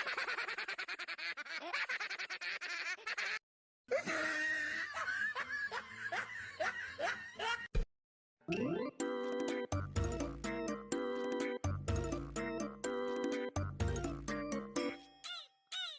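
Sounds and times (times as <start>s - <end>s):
person laughing ha ha: 0.0s - 7.7s.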